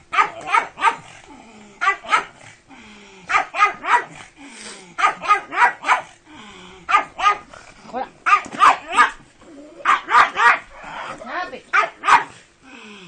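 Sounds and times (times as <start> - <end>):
dog barking: 0.1 - 1.1, 1.8 - 2.4, 3.3 - 4.2, 5.0 - 6.2, 6.9 - 7.5, 8.2 - 9.2, 9.8 - 11.1, 11.7 - 12.4.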